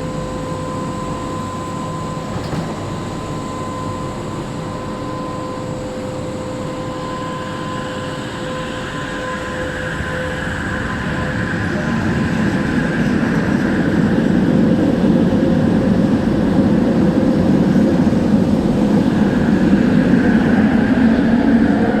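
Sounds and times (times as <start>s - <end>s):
train car rumbling: 0.0s - 8.5s.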